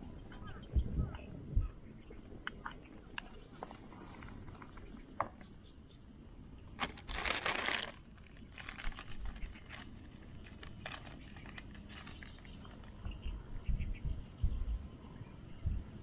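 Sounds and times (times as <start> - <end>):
crinkling: 6.7 - 13.0.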